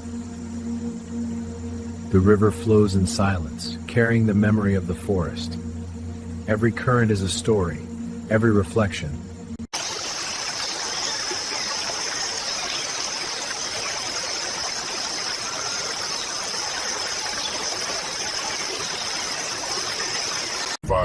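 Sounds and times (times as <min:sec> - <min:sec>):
high-pitched hiss: 0:00.0 - 0:20.7
river water flowing: 0:09.7 - 0:20.8.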